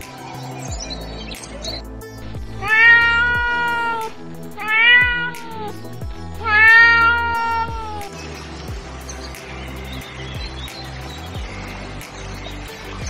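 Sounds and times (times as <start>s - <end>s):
background music: 0.0s - 13.0s
cat meowing: 2.6s - 5.8s, 6.4s - 8.1s.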